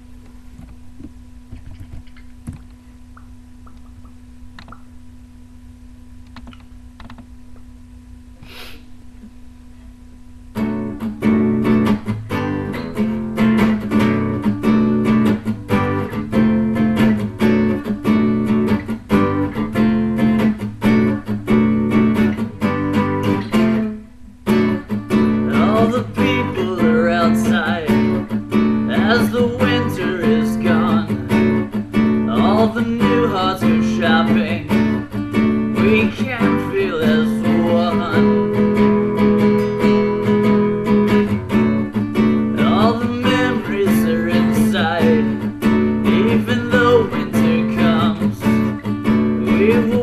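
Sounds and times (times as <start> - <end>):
low steady hum: 0.0 - 50.0
acoustic guitar strumming chords: 10.5 - 50.0.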